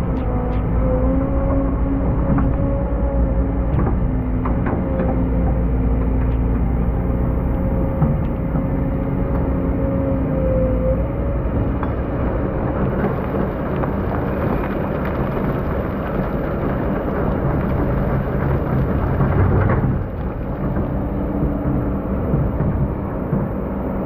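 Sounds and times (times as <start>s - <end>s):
diesel engine low hum: 0.0s - 24.0s
sand and gravel rushing: 11.4s - 22.2s.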